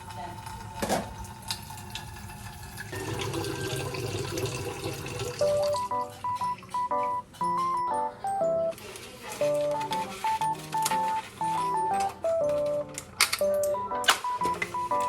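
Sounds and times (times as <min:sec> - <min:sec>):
water running from a tap: 0:00.0 - 0:05.9
light background music: 0:05.3 - 0:15.0.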